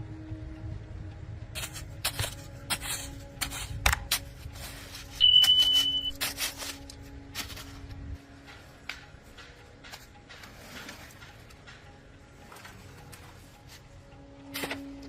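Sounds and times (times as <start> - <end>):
high-pitched beep: 5.2 - 6.2.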